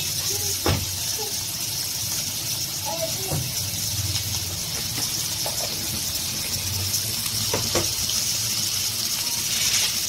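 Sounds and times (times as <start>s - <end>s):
food frying in hot oil: 0.0s - 10.0s.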